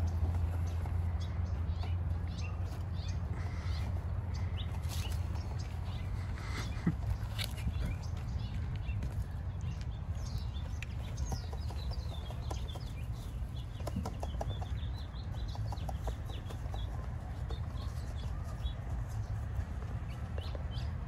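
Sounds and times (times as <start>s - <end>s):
steady low rumble: 0.0s - 14.0s
small birds chirping: 0.0s - 21.0s.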